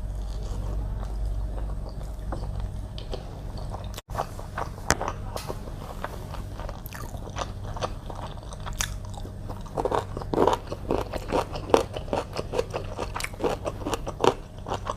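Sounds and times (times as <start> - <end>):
wet chewing and mouth smacking: 0.1 - 14.9
crunchy bites: 3.8 - 14.9.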